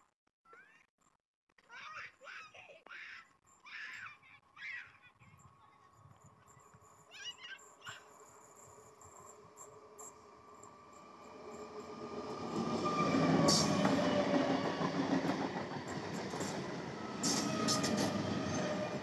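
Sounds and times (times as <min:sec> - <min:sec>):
train wheels rumbling on rails: 0:07.3 - 0:19.0.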